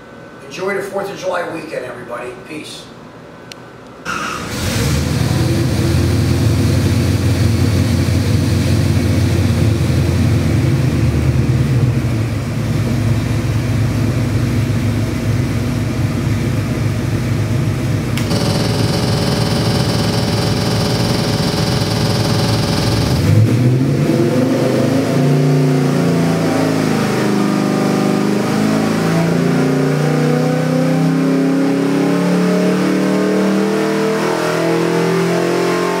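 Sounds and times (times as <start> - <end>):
engine idling on dyno: 4.1 - 25.2.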